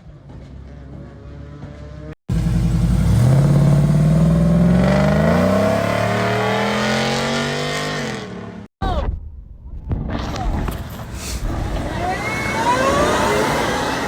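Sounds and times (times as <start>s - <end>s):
car engine accelerating: 0.7s - 8.7s, 11.6s - 14.0s.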